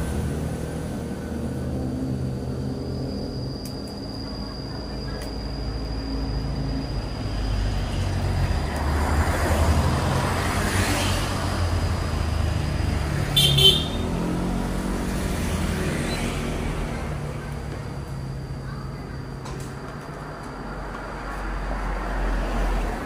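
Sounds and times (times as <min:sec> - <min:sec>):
vehicles rumbling past: 0:00.0 - 0:23.0
vehicle horn toot: 0:13.3 - 0:14.2.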